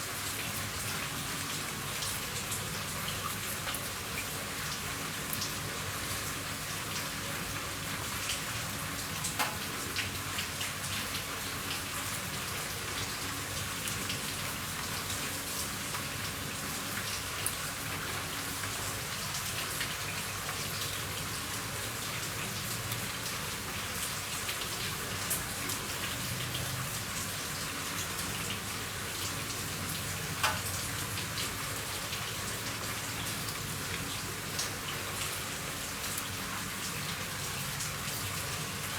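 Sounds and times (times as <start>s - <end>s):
rain falling on a roof: 0.0s - 38.9s
sharp drips: 26.4s - 38.9s.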